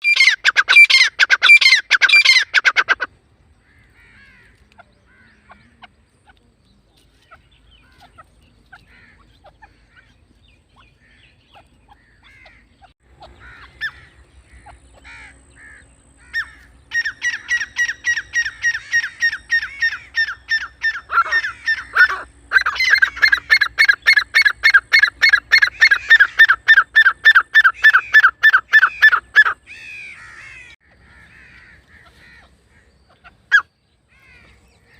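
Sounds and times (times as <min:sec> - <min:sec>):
bird shrill calls: 0:00.0 - 0:03.1, 0:10.8 - 0:34.9.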